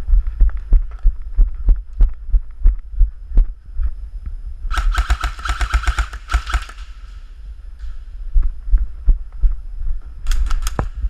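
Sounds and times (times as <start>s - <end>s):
dull low thumps: 0.0s - 4.8s, 7.4s - 11.0s
airsoft gun full-auto burst: 4.7s - 7.1s.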